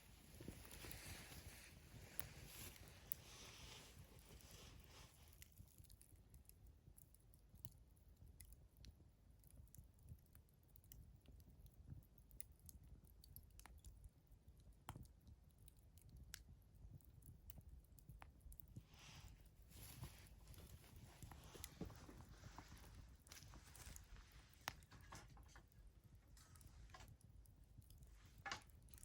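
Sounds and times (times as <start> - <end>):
soft rustling: 0.0 - 6.0, 18.8 - 29.0
wood fire crackling: 0.0 - 29.0.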